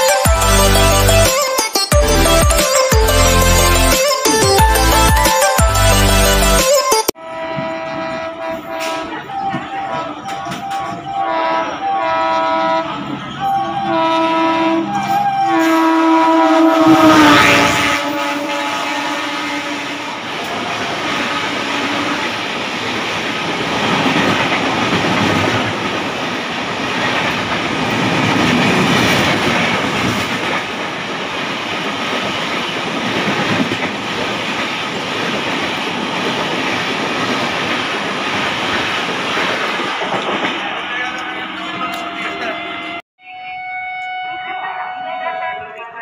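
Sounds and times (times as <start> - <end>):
train horn: 7.2 - 22.4, 41.0 - 46.0
train wheels on rails: 19.8 - 42.6.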